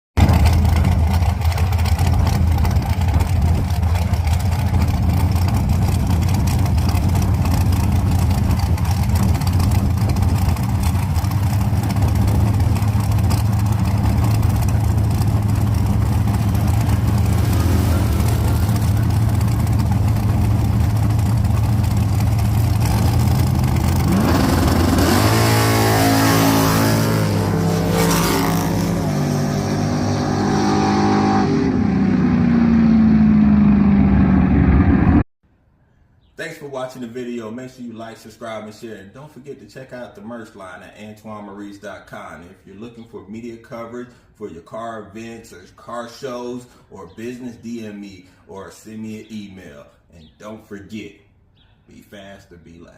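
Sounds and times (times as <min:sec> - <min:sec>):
car engine idling: 0:00.2 - 0:27.8
engine accelerating: 0:00.2 - 0:35.2.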